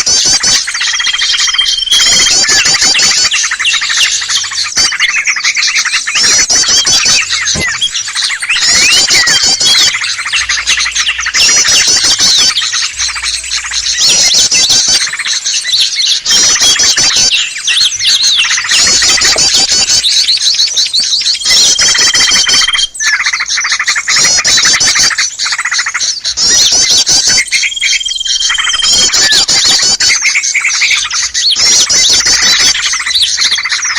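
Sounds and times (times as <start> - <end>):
songbirds chattering: 0.0 - 33.9.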